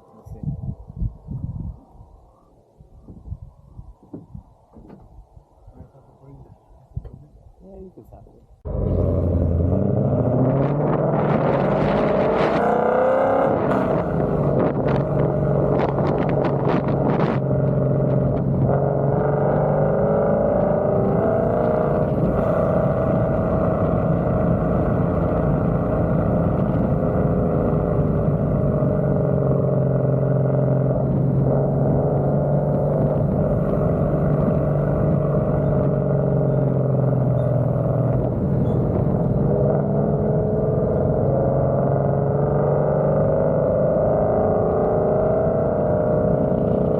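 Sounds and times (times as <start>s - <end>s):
car engine running: 8.6s - 42.0s.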